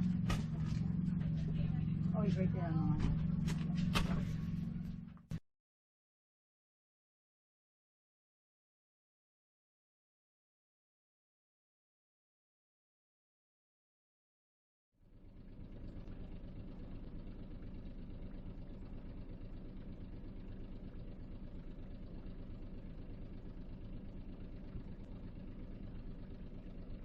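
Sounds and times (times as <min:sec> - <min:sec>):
boat engine running: 0:00.0 - 0:05.4, 0:15.0 - 0:27.0.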